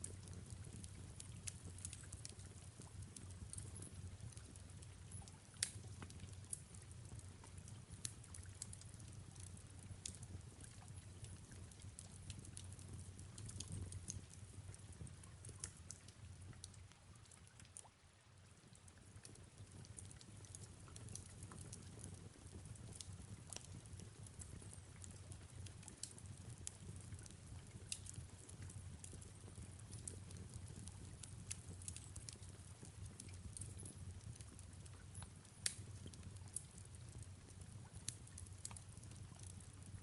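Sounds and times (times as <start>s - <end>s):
fireplace fire crackling: 0.0s - 40.0s
soft rain falling: 0.0s - 40.0s.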